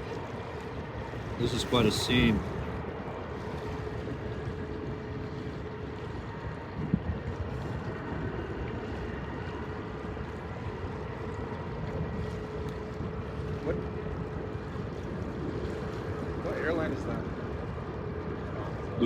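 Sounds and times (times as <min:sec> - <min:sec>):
wind on microphone: 0:00.0 - 0:19.0
distant jet engines rumbling: 0:00.2 - 0:19.0.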